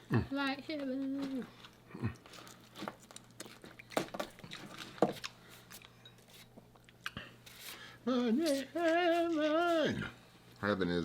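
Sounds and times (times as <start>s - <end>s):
person singing: 8.0s - 10.1s.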